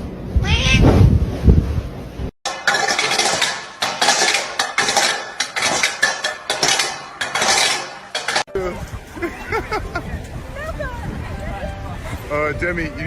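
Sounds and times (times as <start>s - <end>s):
hard objects clattering: 2.4s - 8.5s.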